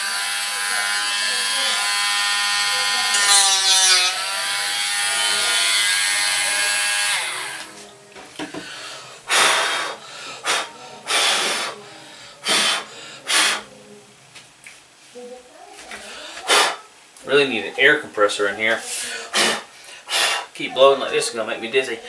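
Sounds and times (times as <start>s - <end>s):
rotary tool high whine: 0.0s - 7.8s
short puffs of breath: 8.6s - 13.8s, 16.0s - 16.8s, 18.9s - 20.6s.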